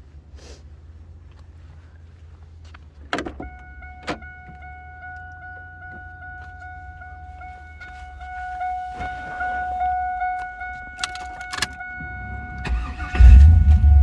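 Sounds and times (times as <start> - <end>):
car warning chime beeps: 3.2 - 14.0.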